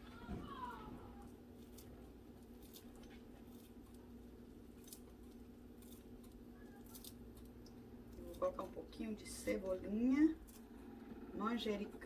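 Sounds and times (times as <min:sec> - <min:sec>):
low steady hum: 0:00.0 - 0:12.0
scissors snipping herbs: 0:01.2 - 0:10.8.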